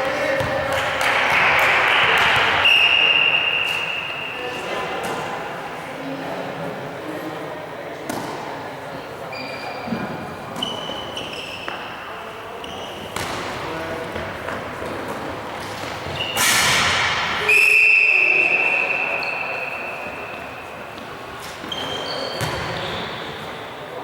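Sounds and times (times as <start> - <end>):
sneaker squeaks on court floor: 9.3 - 13.6, 15.6 - 16.9, 17.6 - 24.0.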